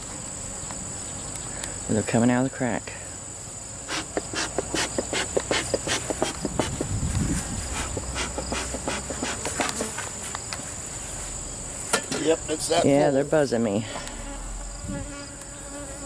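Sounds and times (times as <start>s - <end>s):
bees buzzing: 3.8s - 16.0s.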